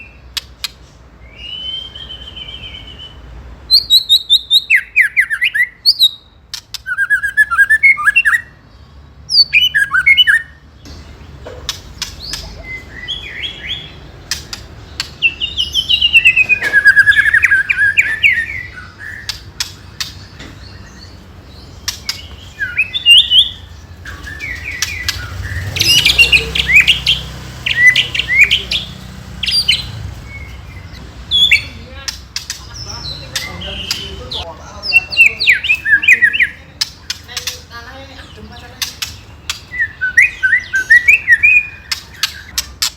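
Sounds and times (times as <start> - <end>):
sharp ticking bird notes: 0.0 - 42.9
bird singing whistled phrases: 1.2 - 8.6, 9.3 - 10.6, 12.0 - 14.0, 15.2 - 20.0, 21.9 - 31.8, 39.0 - 42.5.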